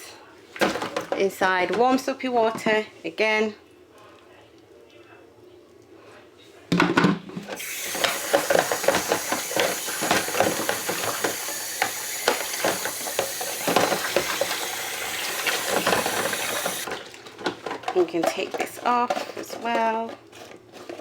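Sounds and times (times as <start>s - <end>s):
filter parts knocking and clattering: 6.8s - 21.0s
tap water running into sink: 7.6s - 17.2s.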